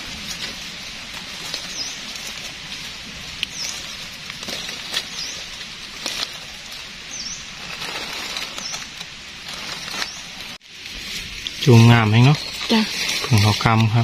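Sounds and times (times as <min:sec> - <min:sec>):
bird chirping: 0:01.6 - 0:02.1, 0:03.4 - 0:04.0, 0:04.9 - 0:05.6, 0:07.0 - 0:09.0, 0:09.6 - 0:10.6.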